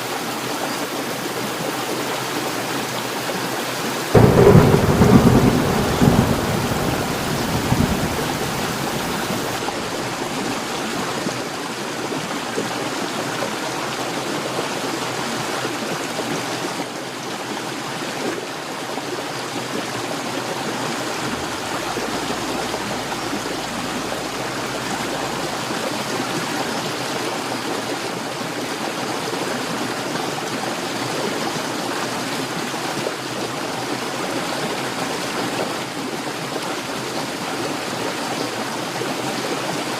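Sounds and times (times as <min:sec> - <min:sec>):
heavy rain pouring: 0:01.2 - 0:12.9, 0:18.1 - 0:30.0
thunder rumble: 0:04.1 - 0:11.3, 0:20.8 - 0:27.2.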